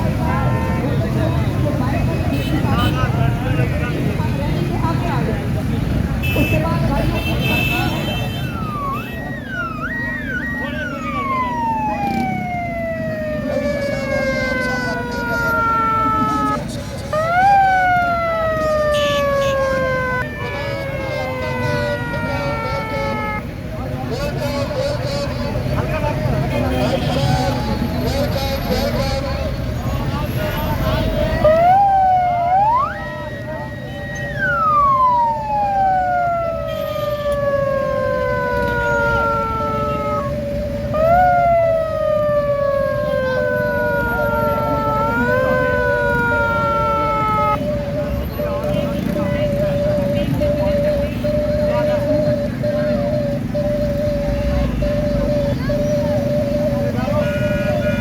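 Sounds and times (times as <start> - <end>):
crowd and traffic din: 0.0 - 58.0
siren sliding in pitch: 7.5 - 23.6, 30.8 - 58.0.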